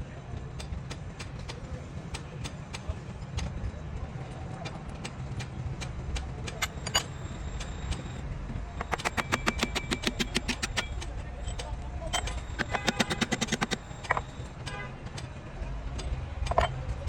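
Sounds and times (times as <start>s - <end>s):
sharp metallic clicks and taps: 8.8s - 14.5s.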